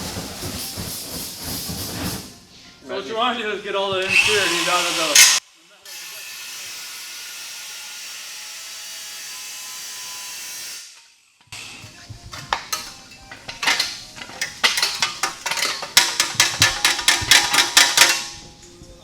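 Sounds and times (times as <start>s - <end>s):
metallic clicks and clinks: 12.3s - 18.8s.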